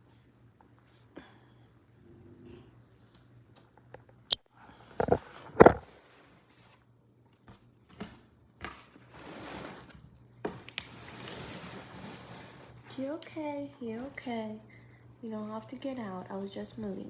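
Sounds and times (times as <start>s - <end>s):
cardboard box scraping rustles: 9.0s - 10.0s, 10.9s - 12.8s.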